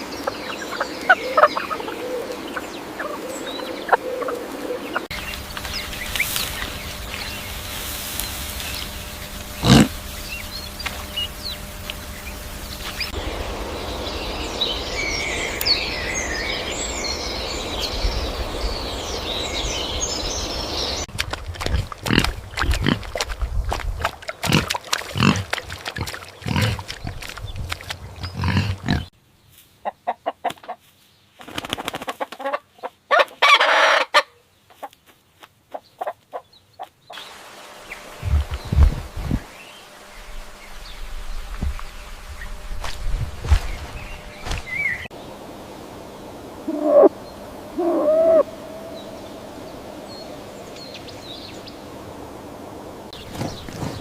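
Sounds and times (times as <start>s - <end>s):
chickens clucking: 0.2s - 5.1s, 29.8s - 30.8s, 32.0s - 35.0s, 35.7s - 36.9s.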